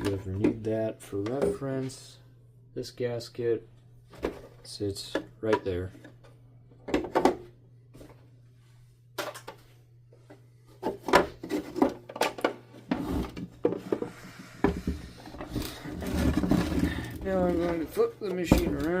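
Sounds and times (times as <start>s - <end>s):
parts rubbing and shuffling: 7.9s - 19.0s
plastic parts clicking and knocking: 10.8s - 19.0s.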